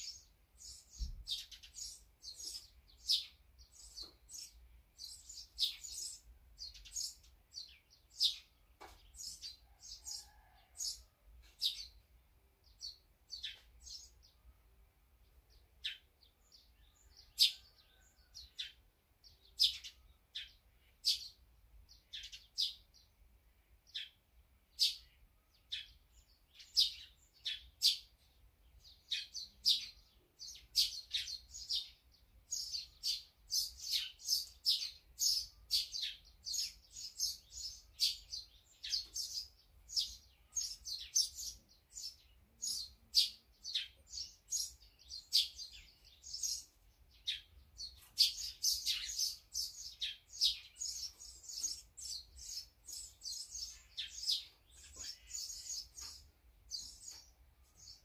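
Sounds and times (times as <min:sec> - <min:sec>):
wild birds chirping: 0:00.0 - 0:58.0.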